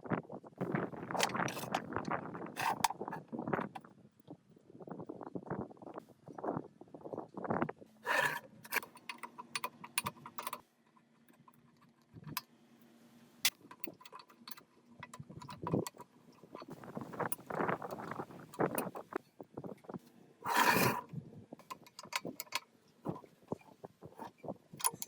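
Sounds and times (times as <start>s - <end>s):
metal parts clinking: 1.1s - 1.8s, 2.6s - 3.2s, 8.1s - 10.6s, 13.4s - 19.2s, 21.6s - 23.2s, 24.2s - 25.0s.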